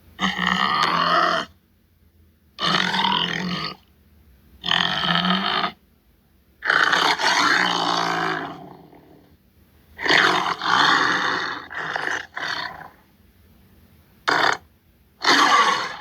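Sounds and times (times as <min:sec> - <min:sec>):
tiger roaring: 0:00.2 - 0:01.6, 0:02.6 - 0:03.8, 0:04.6 - 0:05.8, 0:06.6 - 0:09.3, 0:10.0 - 0:13.1, 0:14.3 - 0:16.0.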